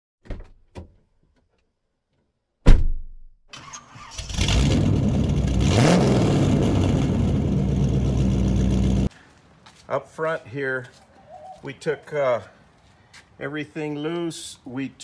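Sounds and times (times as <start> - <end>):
loud thump: 2.6 - 3.3
car engine cranking and running: 3.6 - 9.1.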